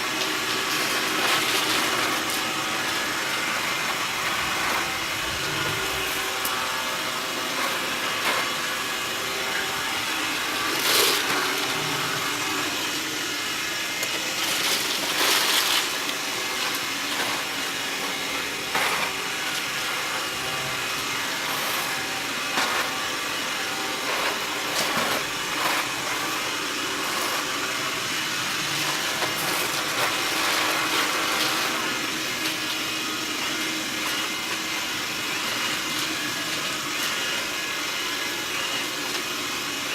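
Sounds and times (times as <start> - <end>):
robot vacuum cleaner humming: 0.0 - 39.9.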